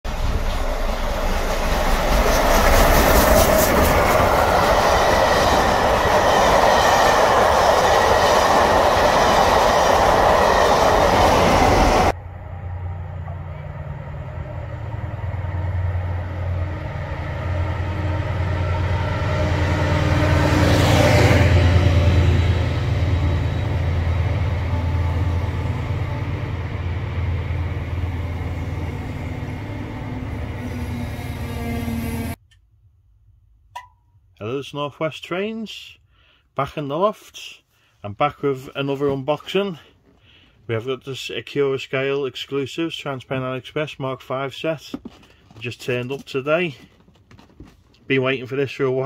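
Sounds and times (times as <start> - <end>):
train rushing and rattling: 0.1 - 32.4.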